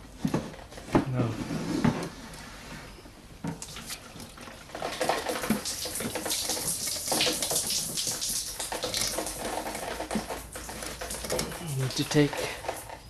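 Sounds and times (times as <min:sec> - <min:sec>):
water running and splashing: 0:05.0 - 0:12.9.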